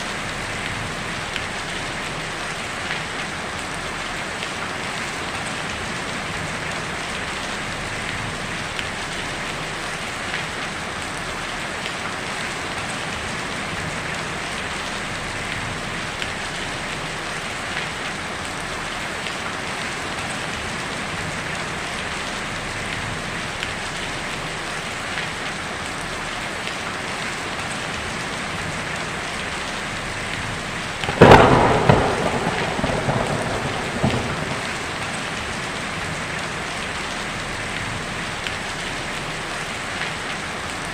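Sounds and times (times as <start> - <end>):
heavy rain on a tin roof: 0.0 - 40.9
thunderclap rolling: 31.0 - 36.5.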